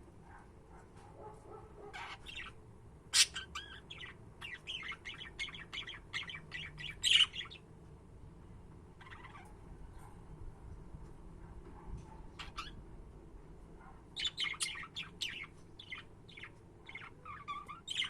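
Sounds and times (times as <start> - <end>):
budgerigar squawks: 1.8 - 4.1
budgerigars chirping: 2.0 - 7.6, 9.0 - 9.5, 12.4 - 12.8, 14.2 - 18.0.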